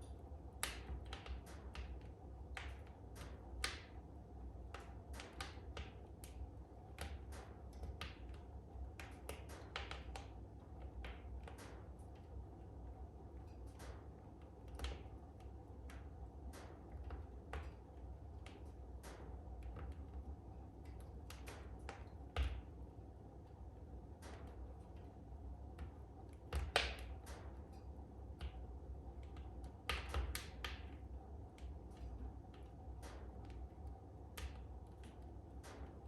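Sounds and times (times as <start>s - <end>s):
wood fire crackling: 0.4s - 36.0s.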